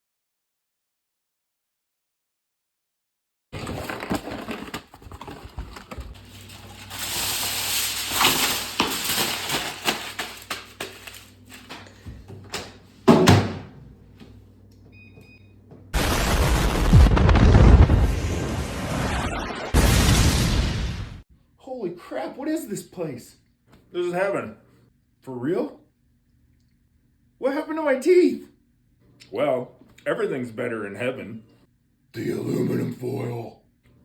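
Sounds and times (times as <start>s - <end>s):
foil arcing crackling and popping: 3.6s - 11.8s, 16.0s - 21.2s
loud explosion blast: 16.0s - 21.2s.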